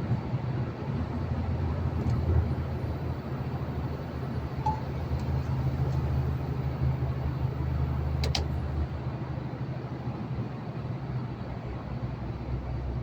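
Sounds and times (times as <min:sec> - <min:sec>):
road noise: 0:00.0 - 0:10.9
diesel truck engine running: 0:00.1 - 0:10.1
sharp clicks: 0:08.2 - 0:08.5.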